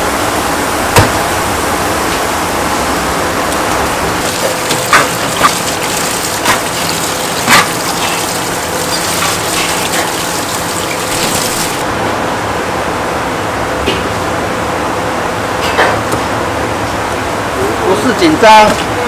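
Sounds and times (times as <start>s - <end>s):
water gushing: 3.7s - 11.9s.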